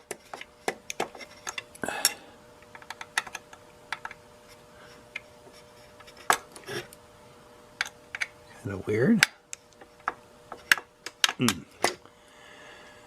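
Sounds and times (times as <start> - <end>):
screwdriver clicking and scraping on screw: 0.0 - 1.7.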